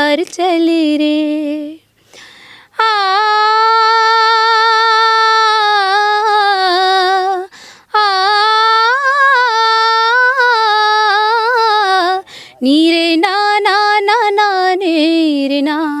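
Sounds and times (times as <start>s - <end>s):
woman singing unaccompanied: 0.0s - 2.0s, 2.6s - 16.0s
woman breathing in: 2.0s - 2.7s, 7.5s - 7.9s, 12.3s - 12.6s.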